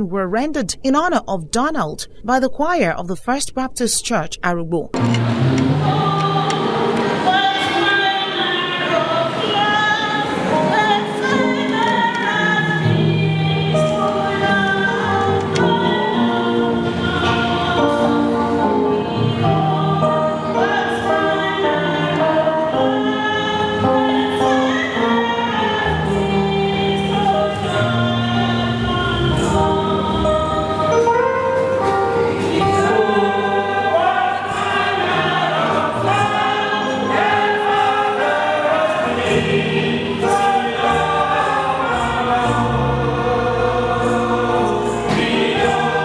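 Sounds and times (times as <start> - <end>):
low accompaniment: 4.9 - 7.5
choir singing in harmony: 5.0 - 46.0.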